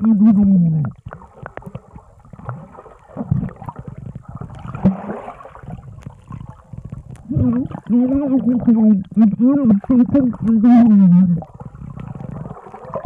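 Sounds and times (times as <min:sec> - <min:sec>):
person talking under water: 0:00.0 - 0:01.0, 0:07.1 - 0:11.7
underwater bubbling and gurgling: 0:00.0 - 0:13.0.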